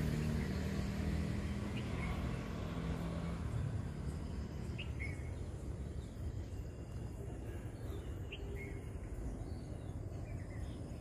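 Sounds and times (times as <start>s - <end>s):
low outdoor rumble: 0.0s - 11.0s
high bird chirps: 4.3s - 11.0s.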